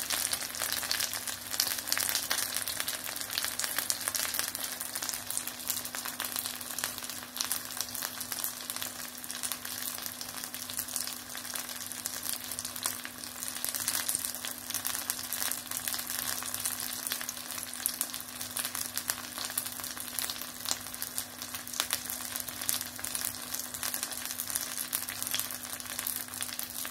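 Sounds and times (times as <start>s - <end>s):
schnitzels sizzling in oil: 0.0s - 26.9s.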